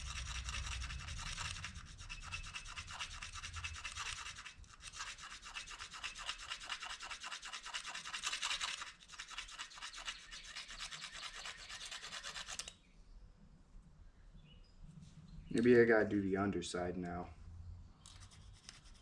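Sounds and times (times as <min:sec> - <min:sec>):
plastic fork scraping plastic spoon: 0:00.0 - 0:12.7.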